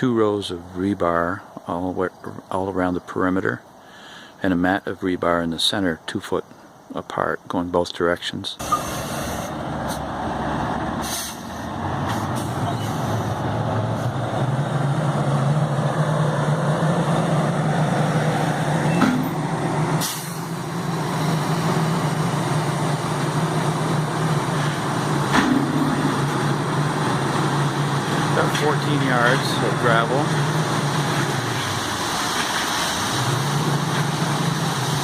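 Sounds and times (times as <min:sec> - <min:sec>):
truck engine running: 0:08.6 - 0:35.0.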